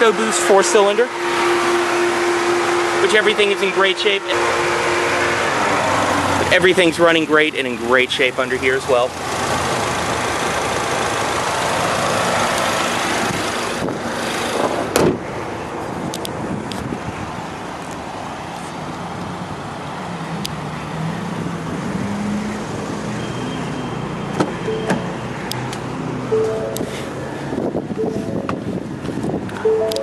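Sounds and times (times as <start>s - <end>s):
car engine idling: 0.0s - 21.0s
car hood thumping shut: 14.6s - 15.2s.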